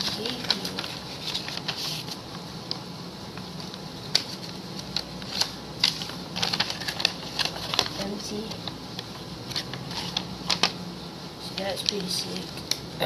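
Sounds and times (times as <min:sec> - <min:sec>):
packaging rustling and clicking: 0:00.0 - 0:02.8, 0:03.5 - 0:10.8.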